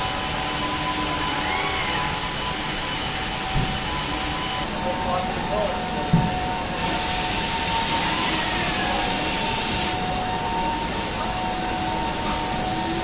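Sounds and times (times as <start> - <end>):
machinery hiss: 0.0 - 13.0
machinery hum: 0.0 - 13.0
steady machine tones: 0.0 - 13.0.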